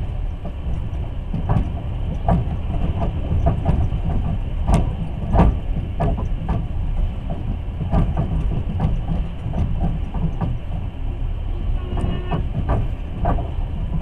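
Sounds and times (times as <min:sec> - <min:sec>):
train wheels rumbling on track: 0:00.0 - 0:14.0
clicks and knocks: 0:11.9 - 0:14.0.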